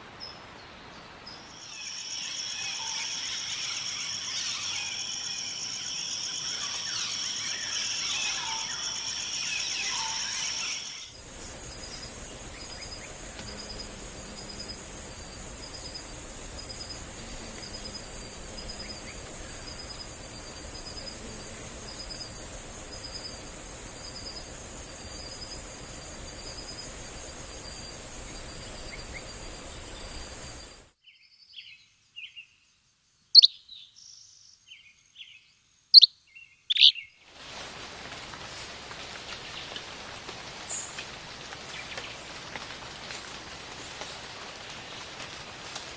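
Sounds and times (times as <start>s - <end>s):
insect chorus buzzing: 1.3s - 31.0s, 36.7s - 45.9s
pulsing insect call: 1.5s - 31.0s, 36.7s - 45.9s
bird chirps: 33.4s - 34.0s, 36.0s - 37.2s.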